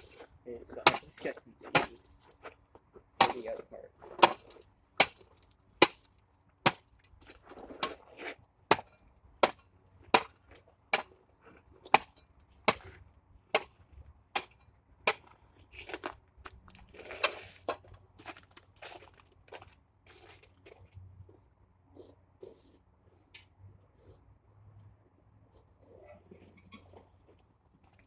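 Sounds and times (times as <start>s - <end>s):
ice chopper striking ice: 0.8s - 2.0s, 3.2s - 3.5s, 4.2s - 5.2s
ice chips crunching and scraping: 15.1s - 20.9s.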